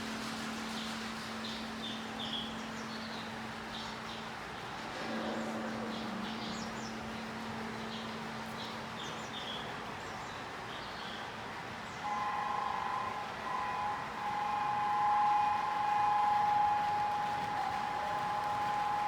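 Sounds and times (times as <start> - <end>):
two-tone train horn: 12.0 - 19.0.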